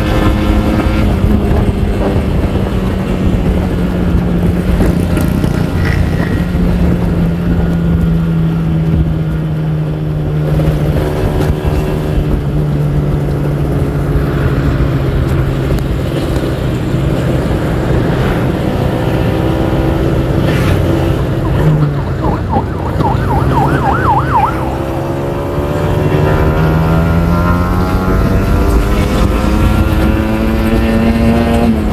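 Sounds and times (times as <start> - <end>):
motorcycle engine running: 0.0 - 31.9
wavering siren-like tone: 20.8 - 26.1.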